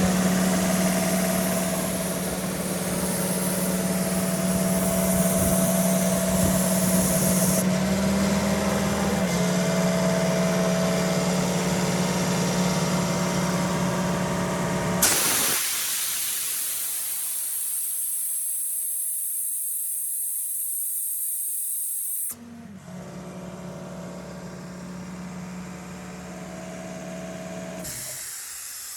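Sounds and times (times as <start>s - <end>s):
compressed air hissing: 0.0s - 7.6s, 15.0s - 22.3s, 27.8s - 28.9s
compressor diesel engine hum: 0.0s - 21.3s, 22.2s - 28.9s.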